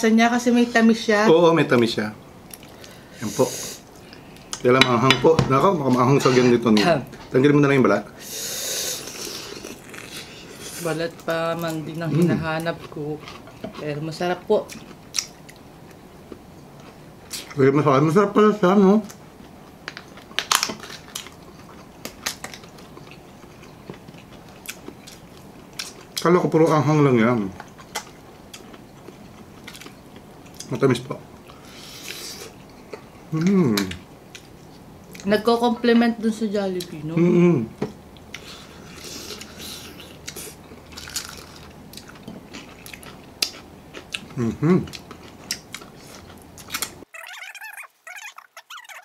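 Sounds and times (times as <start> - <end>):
wet chewing: 9.0 - 13.9, 14.6 - 17.6, 27.6 - 30.8, 38.1 - 49.0
crunching fried chicken: 19.9 - 26.3, 38.3 - 49.0.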